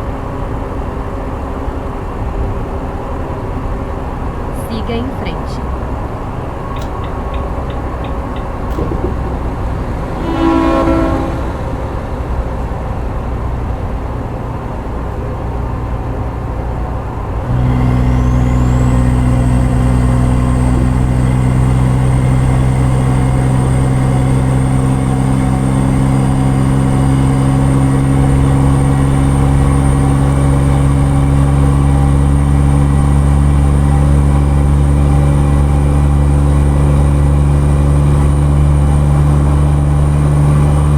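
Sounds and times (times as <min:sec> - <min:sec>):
road noise: 0:00.0 - 0:40.9
truck engine: 0:00.0 - 0:40.9
high whine: 0:08.2 - 0:13.3
brief tone: 0:10.2 - 0:11.8.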